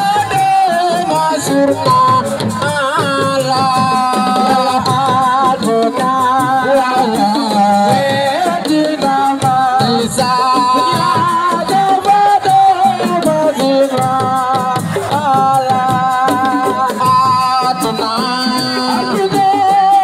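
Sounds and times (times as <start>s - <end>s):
hand percussion: 0.0s - 20.0s
person singing with vibrato: 0.0s - 20.0s.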